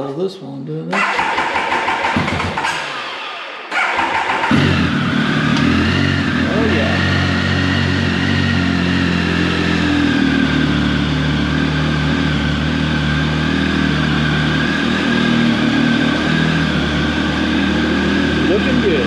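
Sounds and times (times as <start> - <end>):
motorcycle engine fast idle: 1.0 - 6.4.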